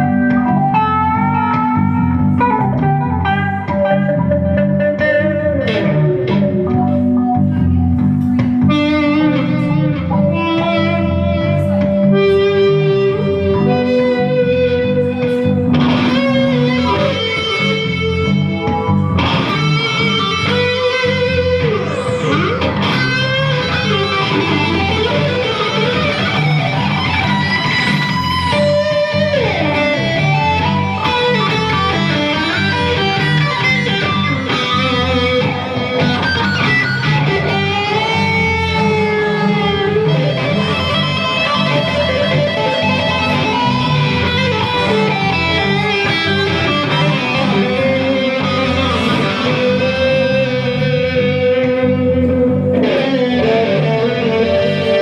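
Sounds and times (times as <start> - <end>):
electric guitar with sliding notes: 0.0 - 55.0
repeating bass pattern: 14.8 - 55.0.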